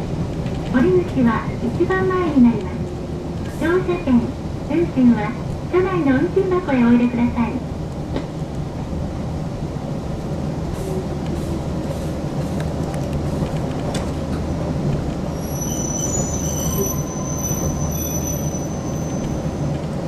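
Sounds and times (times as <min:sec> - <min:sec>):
train rumble inside car: 0:00.0 - 0:20.0
wheels squealing on rails: 0:15.3 - 0:20.0.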